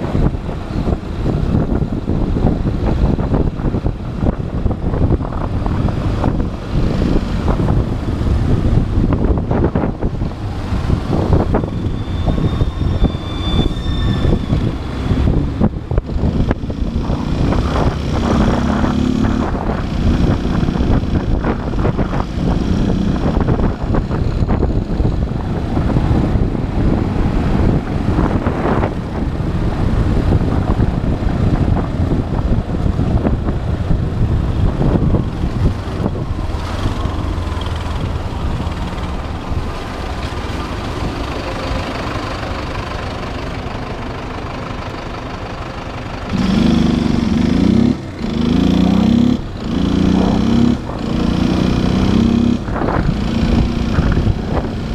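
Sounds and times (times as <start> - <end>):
wind rushing over microphone: 0.0 - 43.6, 46.3 - 54.9
traffic: 0.0 - 54.9
motorcycle engine running: 15.3 - 54.9.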